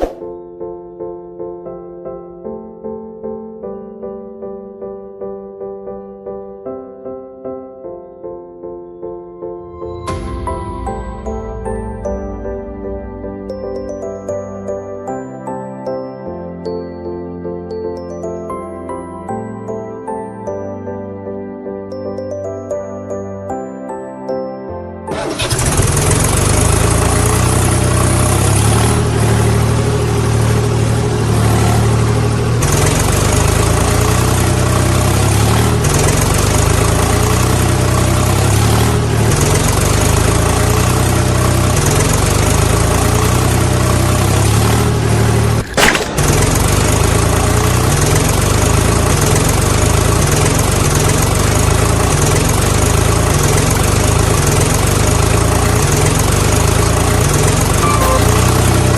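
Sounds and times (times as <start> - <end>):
tractor engine chugging: 25.1 - 58.9.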